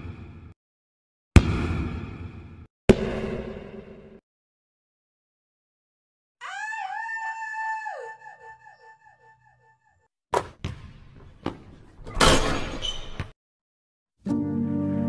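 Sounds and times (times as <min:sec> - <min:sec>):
basketball hitting the hoop: 0:01.4 - 0:03.6, 0:10.3 - 0:13.3.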